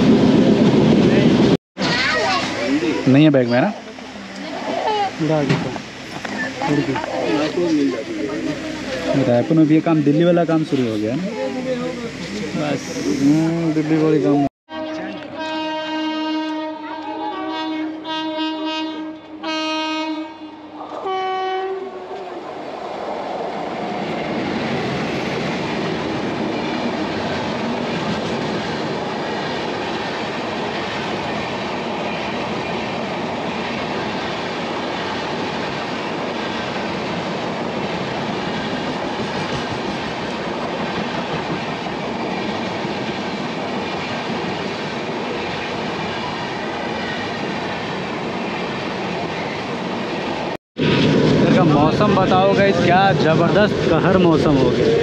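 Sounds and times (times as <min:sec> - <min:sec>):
train coach rushing and rattling: 0:00.0 - 0:55.0
train horn blasts: 0:14.7 - 0:22.2.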